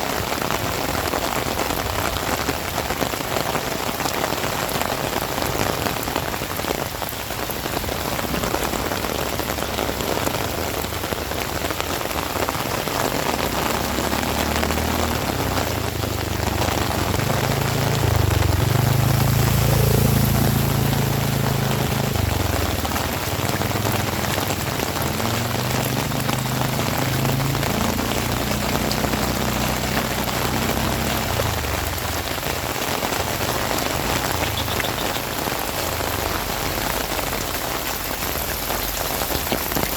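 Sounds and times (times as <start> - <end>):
heavy rain falling: 0.0 - 39.9
low drone: 16.7 - 23.2.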